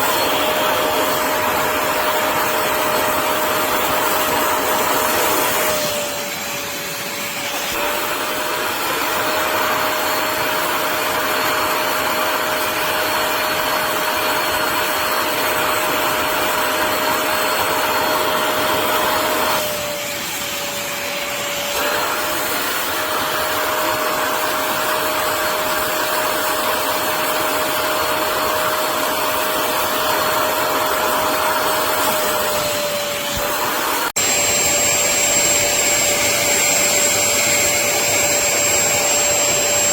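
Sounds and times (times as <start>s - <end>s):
water vacuum motor whine: 21.1s - 39.9s.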